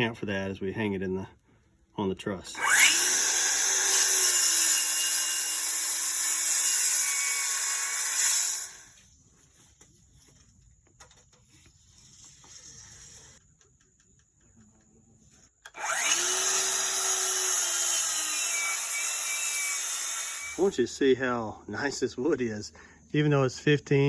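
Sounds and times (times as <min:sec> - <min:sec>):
power saw cutting wood: 0:02.5 - 0:09.0, 0:15.7 - 0:20.7.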